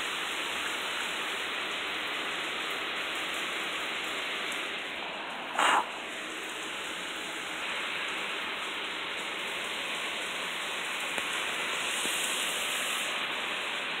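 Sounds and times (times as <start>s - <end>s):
heavy rain hiss: 0.0s - 14.0s.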